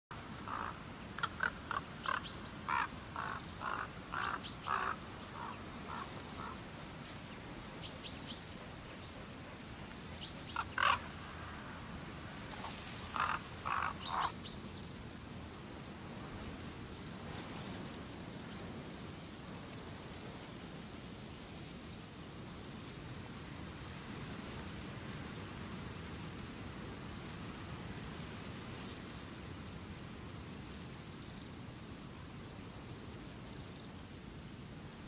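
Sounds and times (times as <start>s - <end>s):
faint steady hiss: 0.1s - 35.0s
birds calling: 0.4s - 14.9s.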